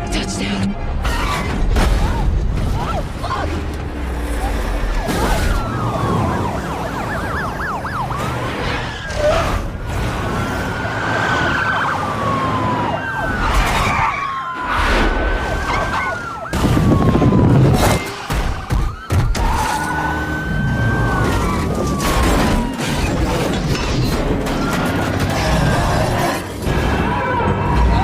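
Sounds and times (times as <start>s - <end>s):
emergency sirens wailing: 2.2s - 28.0s
warbling siren yelp: 4.3s - 9.6s, 10.2s - 23.3s.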